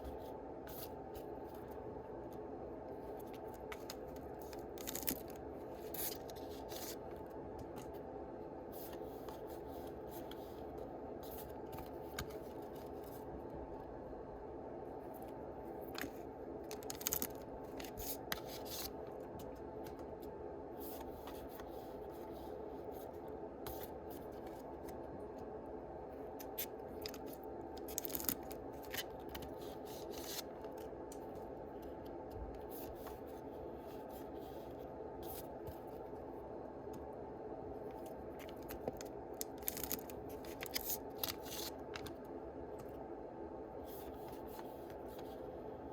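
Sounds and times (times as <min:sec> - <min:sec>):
cards and wrappers rustling: 0:03.1 - 0:08.0, 0:16.0 - 0:20.2, 0:26.4 - 0:31.4, 0:38.0 - 0:42.2.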